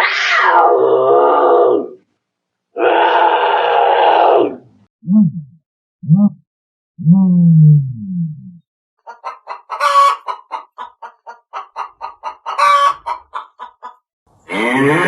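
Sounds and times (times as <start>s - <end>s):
chicken squawk: 0.0s - 1.9s, 2.8s - 4.6s, 9.0s - 15.0s
chicken clucking: 9.0s - 14.0s.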